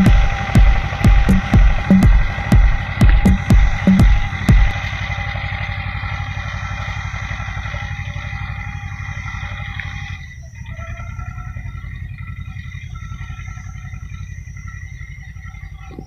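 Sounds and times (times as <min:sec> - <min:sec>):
music with heavy bass beat: 0:00.0 - 0:09.4
tractor diesel engine running: 0:00.0 - 0:16.0.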